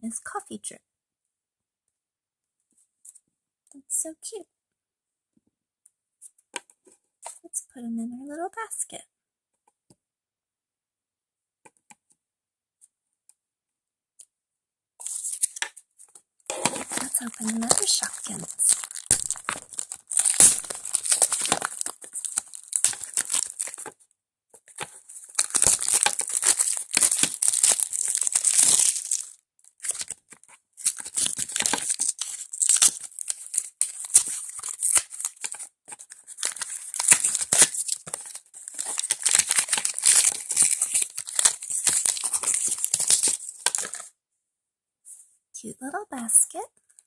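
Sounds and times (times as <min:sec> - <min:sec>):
plastic packaging tearing and crinkling: 0:15.0 - 0:15.6, 0:16.5 - 0:24.0, 0:24.6 - 0:44.1.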